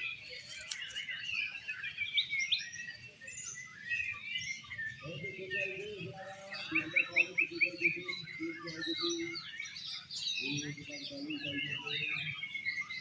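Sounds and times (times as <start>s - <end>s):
songbirds whistling and chirping: 0.0s - 13.0s.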